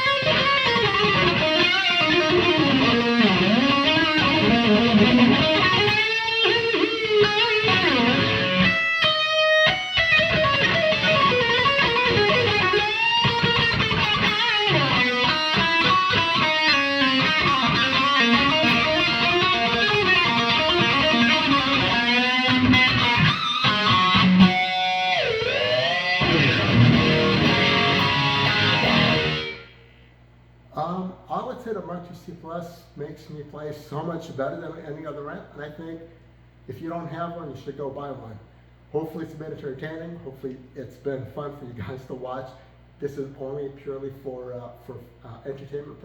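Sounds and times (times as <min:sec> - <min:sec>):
distorted electric guitar lead: 0:00.0 - 0:30.0.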